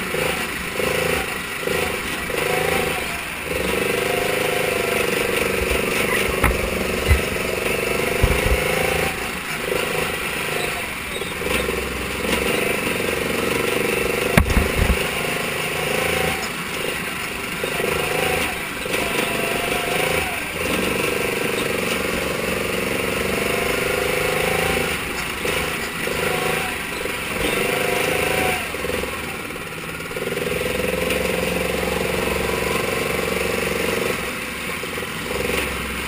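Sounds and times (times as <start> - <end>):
race car engine running hard: 0.0 - 36.0
sharp knocks: 5.6 - 9.1, 14.3 - 15.2.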